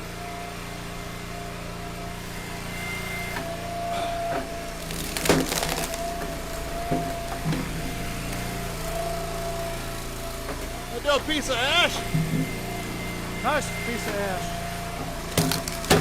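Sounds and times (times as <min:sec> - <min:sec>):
log splitter engine running: 0:00.0 - 0:16.0
wood splintering crack: 0:04.2 - 0:09.3, 0:15.0 - 0:16.0.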